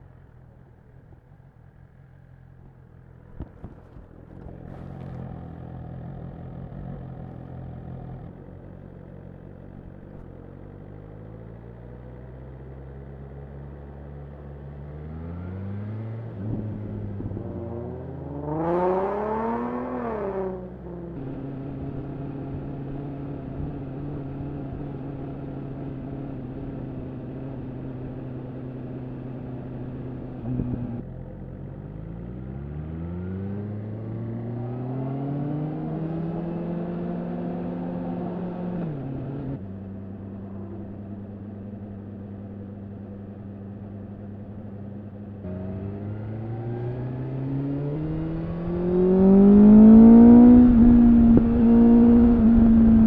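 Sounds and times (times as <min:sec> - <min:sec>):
motorcycle engine revving: 0:14.3 - 0:53.0.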